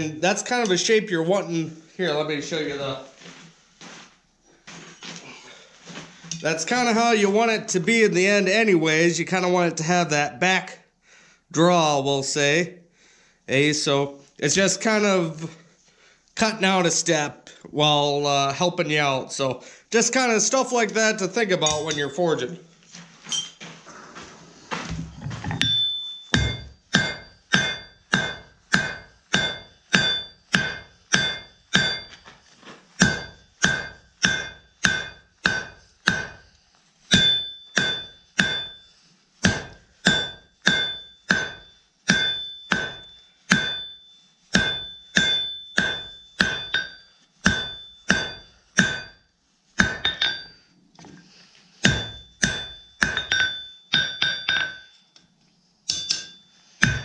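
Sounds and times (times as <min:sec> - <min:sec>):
hammer striking steel on anvil: 0:21.6 - 0:22.2, 0:25.6 - 0:32.3, 0:33.0 - 0:36.5, 0:37.1 - 0:50.7, 0:51.8 - 0:55.0, 0:55.9 - 0:57.0.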